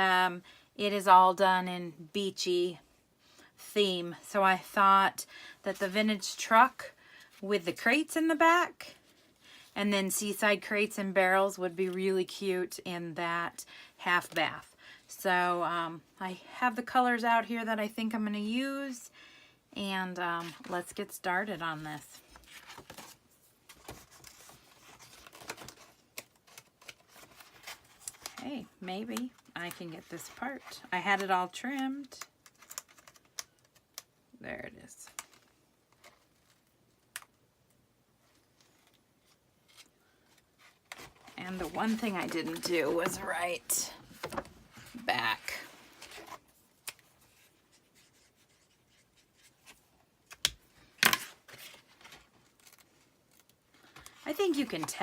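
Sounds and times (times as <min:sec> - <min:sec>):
plastic sheet rustling and crinkling: 0:40.6 - 0:46.5.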